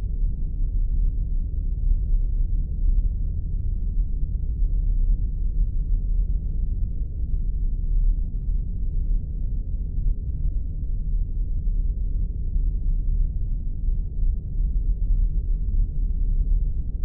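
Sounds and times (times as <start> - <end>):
deep spaceship rumble: 0.0 - 17.0.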